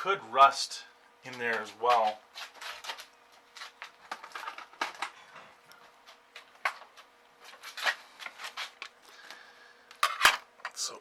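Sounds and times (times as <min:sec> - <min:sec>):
faint steady hum: 0:00.0 - 0:11.0
hands handling plastic and metal parts: 0:09.9 - 0:10.8.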